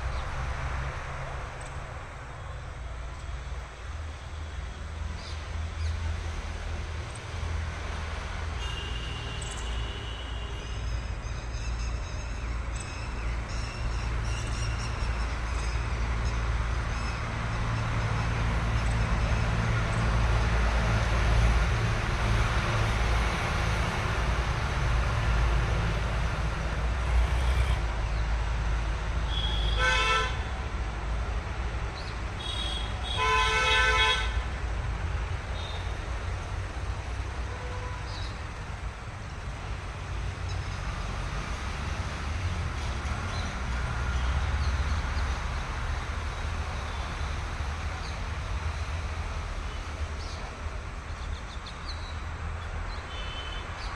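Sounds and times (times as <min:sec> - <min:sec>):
vehicle horn honking: 0:08.6 - 0:10.8, 0:29.3 - 0:30.5, 0:32.4 - 0:34.4.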